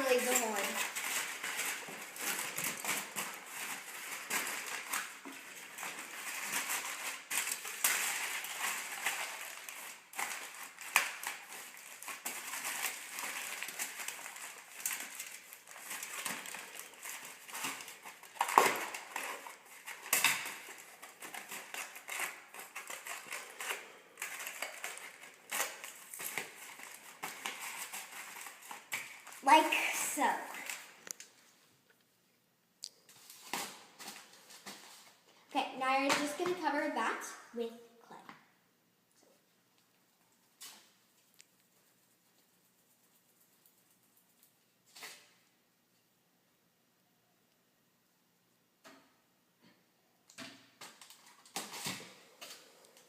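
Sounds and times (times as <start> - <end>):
aluminum foil crinkling: 0.0 - 31.5, 50.8 - 53.0.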